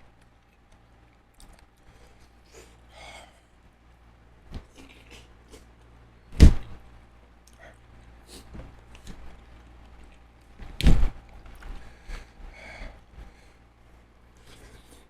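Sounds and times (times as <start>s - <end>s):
small clicks and mouth noises: 0.0s - 2.8s, 7.4s - 11.8s.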